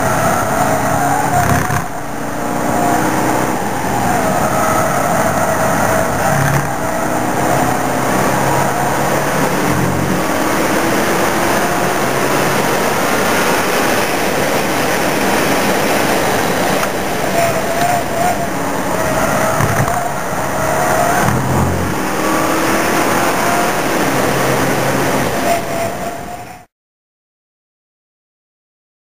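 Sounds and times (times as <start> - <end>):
race car engine from inside cabin: 0.0 - 26.6
engine gear changes: 1.3 - 2.0, 6.1 - 6.9, 19.3 - 20.2, 20.8 - 22.8.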